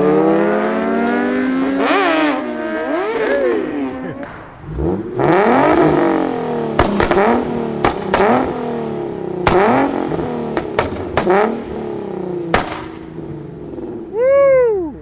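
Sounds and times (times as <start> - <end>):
car engine revving: 0.0 - 14.2
exhaust bangs: 4.2 - 14.1.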